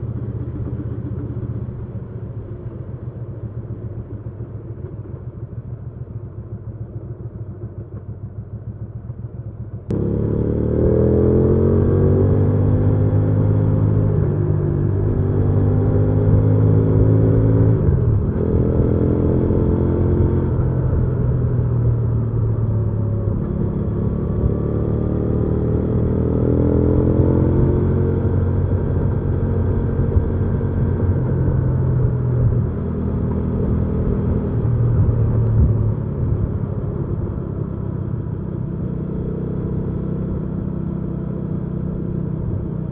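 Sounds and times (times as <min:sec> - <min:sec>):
motorcycle engine revving: 0:09.9 - 0:42.9.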